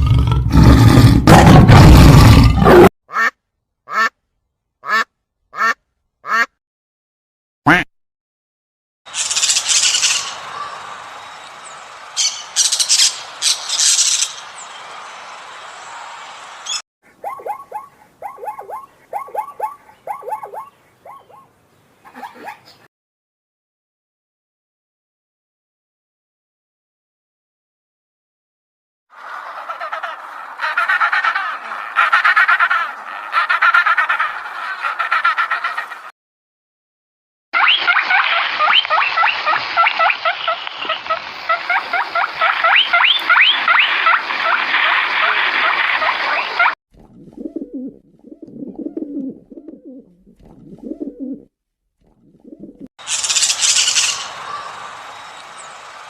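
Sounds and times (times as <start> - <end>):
animal yelping: 17.2 - 21.5, 22.1 - 22.6
small animals squeaking: 53.0 - 54.3.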